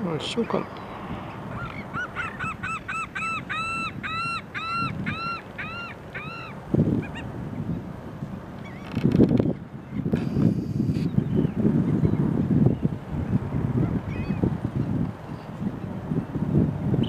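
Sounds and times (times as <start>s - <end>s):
wind rumble on microphone: 0.0s - 17.0s
bird calling: 0.4s - 7.3s.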